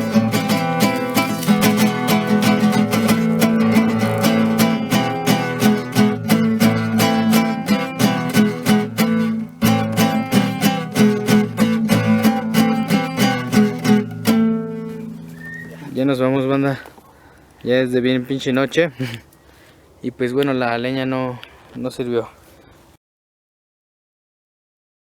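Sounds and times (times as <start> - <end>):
acoustic guitar strumming: 0.0 - 16.2.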